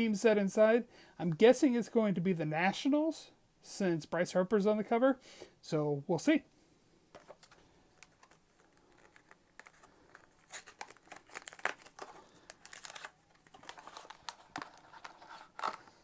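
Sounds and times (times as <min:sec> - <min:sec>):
packaging crinkling and tearing: 0:07.2 - 0:16.0.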